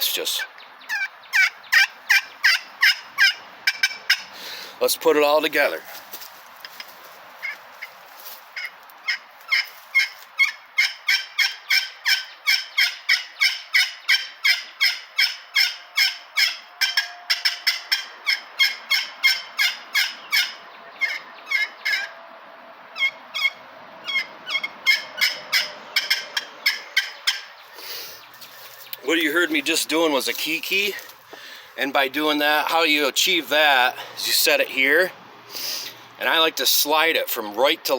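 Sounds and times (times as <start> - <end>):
turkey call squealing notes: 0.3 - 4.3, 8.6 - 22.2, 23.0 - 29.1.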